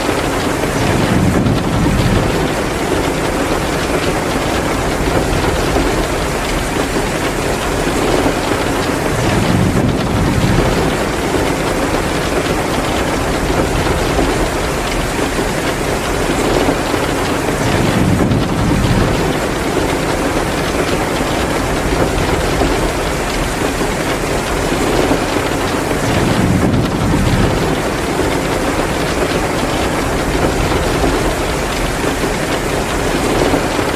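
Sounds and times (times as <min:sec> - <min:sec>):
heavy rain pouring: 0:00.0 - 0:33.9
wood fire crackling: 0:00.0 - 0:33.9.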